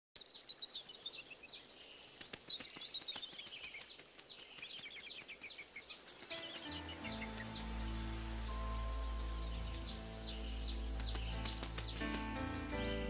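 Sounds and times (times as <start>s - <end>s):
birds chirping: 0.2s - 13.0s
music with held notes: 6.3s - 13.0s.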